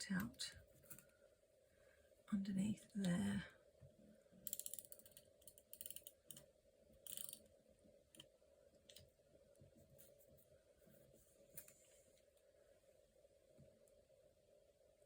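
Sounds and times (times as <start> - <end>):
small clicks: 4.4 - 7.5.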